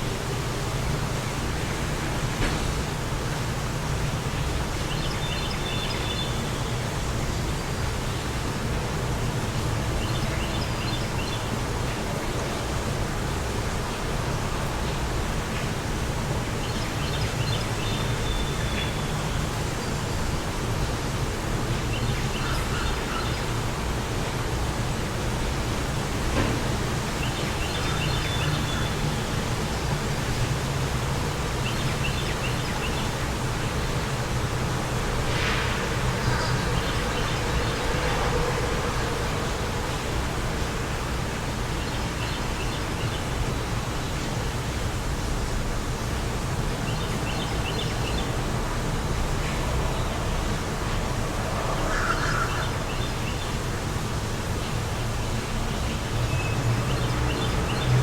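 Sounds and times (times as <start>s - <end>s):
wind with low rumble: 0.0s - 58.0s
wind blowing: 32.4s - 42.2s.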